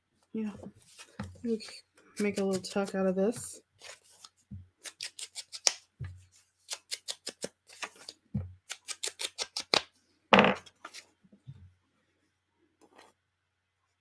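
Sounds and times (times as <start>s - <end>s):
scissors snipping paper: 1.5s - 3.0s, 4.8s - 5.8s, 6.6s - 9.8s.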